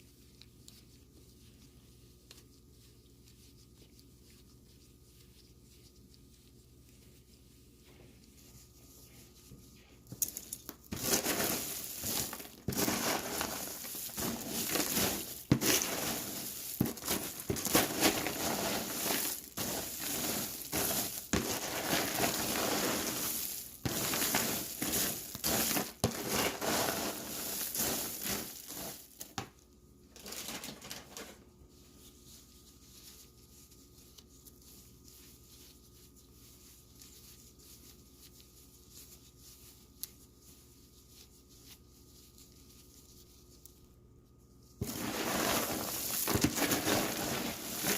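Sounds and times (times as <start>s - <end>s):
crunchy popcorn being stirred: 10.2s - 31.4s, 44.8s - 47.9s.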